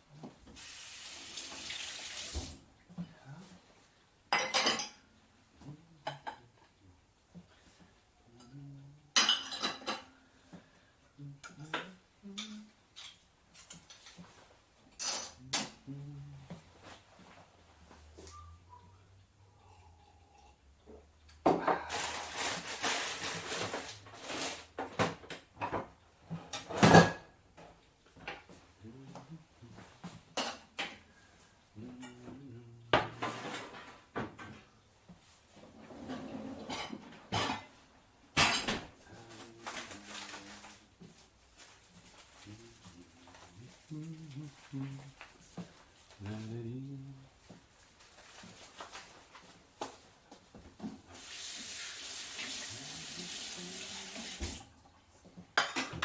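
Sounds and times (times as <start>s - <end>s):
kitchen rustling: 0.3s - 2.7s, 12.9s - 18.5s, 21.5s - 56.0s
crockery and cutlery clattering: 4.3s - 5.1s, 9.2s - 10.1s, 14.9s - 15.8s, 33.0s - 34.7s, 35.9s - 37.8s, 38.4s - 38.9s, 55.6s - 56.0s
dishes clinking: 4.3s - 5.1s, 9.2s - 10.2s, 14.9s - 15.8s, 36.0s - 37.8s, 38.4s - 38.9s, 55.6s - 56.0s.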